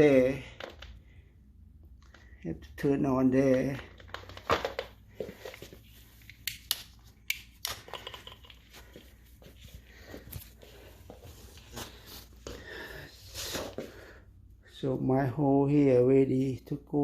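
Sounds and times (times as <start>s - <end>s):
equipment being handled: 3.4s - 14.0s.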